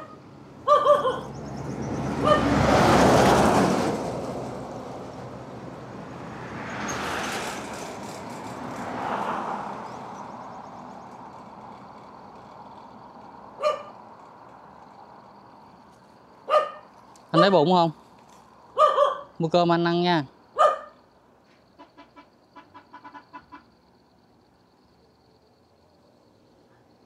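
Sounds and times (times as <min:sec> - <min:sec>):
dog barking: 0:00.0 - 0:01.3, 0:02.2 - 0:02.6, 0:13.6 - 0:14.0, 0:16.5 - 0:17.7, 0:18.8 - 0:19.4, 0:20.6 - 0:21.0
vehicles passing: 0:00.0 - 0:27.0.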